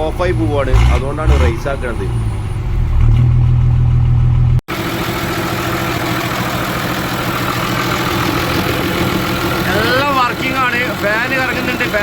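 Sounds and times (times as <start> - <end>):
bus diesel engine revving: 0.0 - 4.6.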